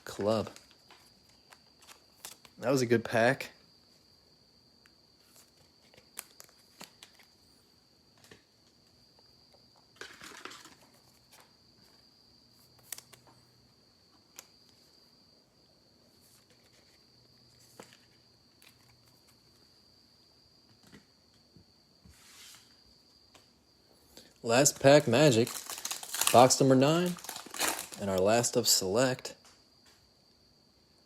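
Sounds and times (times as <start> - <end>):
crinkly rustle of packs: 24.5 - 28.8.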